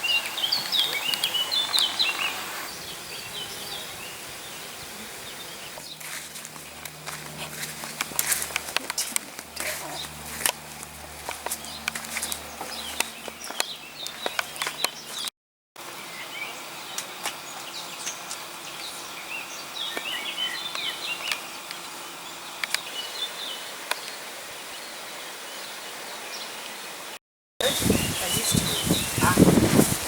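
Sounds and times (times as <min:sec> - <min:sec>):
rain hiss: 0:00.0 - 0:05.8, 0:22.8 - 0:30.0
small birds chirping: 0:00.0 - 0:15.3, 0:15.9 - 0:26.8, 0:27.6 - 0:30.0.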